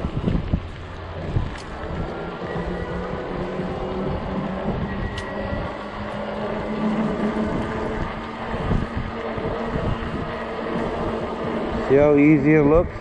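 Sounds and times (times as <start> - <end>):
electric bike motor drone: 0.0 - 13.0
wind buffeting microphone: 0.0 - 13.0.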